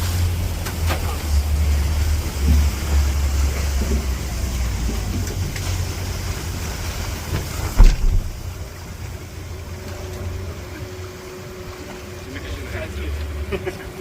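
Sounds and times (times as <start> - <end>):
boat engine rumble: 0.0 - 14.0
wind and water hiss: 0.0 - 14.0
sharp thump: 7.8 - 8.4.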